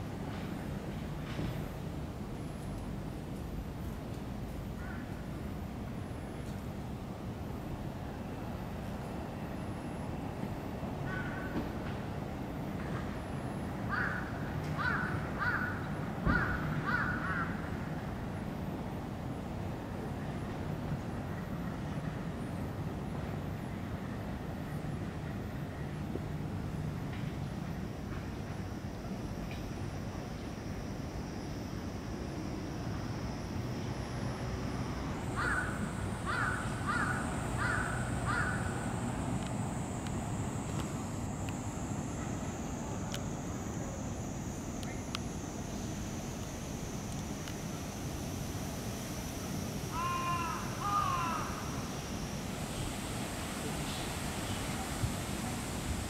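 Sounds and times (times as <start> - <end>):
steady low hum: 0.0 - 56.0
crow cawing: 13.9 - 17.6, 35.4 - 38.7, 49.9 - 51.6.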